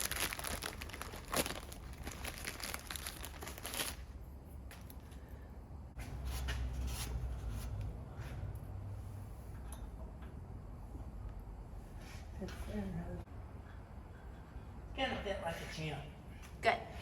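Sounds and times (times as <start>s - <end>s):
packaging crinkling and tearing: 0.0s - 4.1s.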